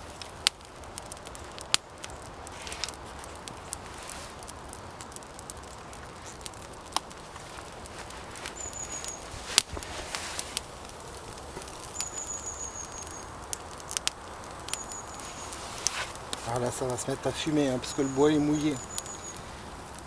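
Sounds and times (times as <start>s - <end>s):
campfire crackling and popping: 0.0s - 20.0s
thin high whistles: 8.5s - 9.6s, 11.9s - 13.3s, 14.8s - 16.1s, 17.7s - 19.5s.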